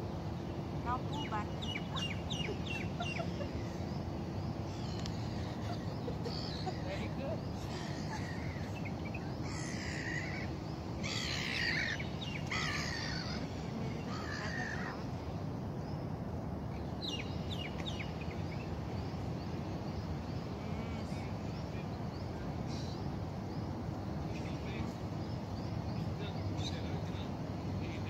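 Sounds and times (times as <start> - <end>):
low background hum: 0.0 - 28.0
harsh bird calls: 0.1 - 16.1.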